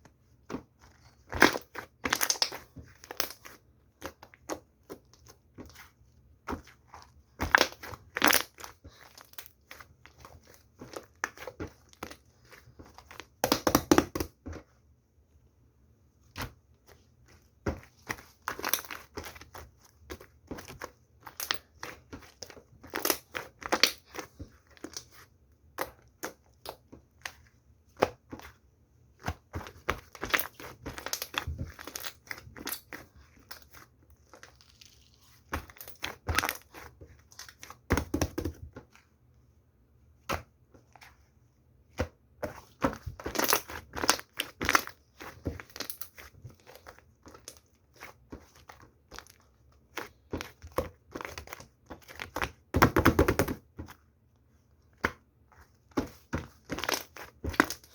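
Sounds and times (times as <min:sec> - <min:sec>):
crackling and crumpling: 0:29.2 - 0:37.9.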